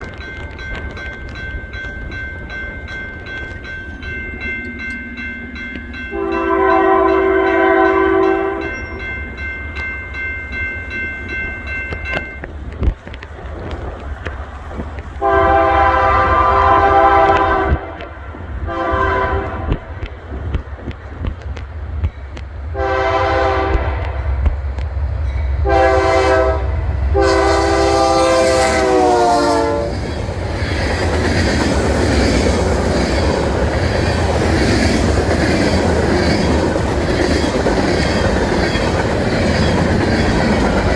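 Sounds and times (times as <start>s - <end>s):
diesel locomotive rumbling: 0.0s - 40.9s
train air horn blasts: 6.1s - 8.8s, 15.2s - 20.0s, 22.7s - 24.3s, 25.6s - 30.0s
high-pitched ringing tone: 7.1s - 12.4s.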